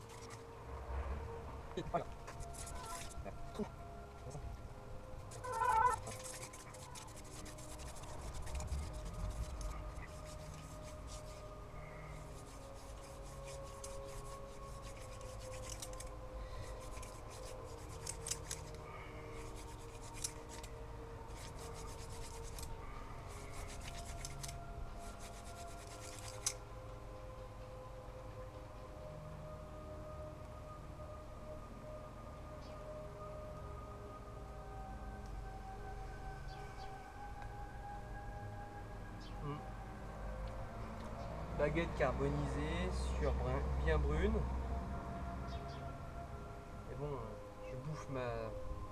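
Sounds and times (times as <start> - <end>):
wooden spindle rasping on board: 5.4 - 11.4, 12.3 - 16.0, 21.3 - 22.7, 23.3 - 26.6.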